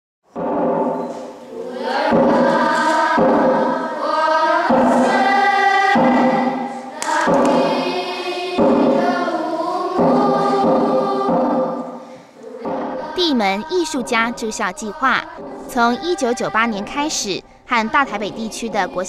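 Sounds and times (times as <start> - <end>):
choir singing slow melody: 1.4 - 16.8.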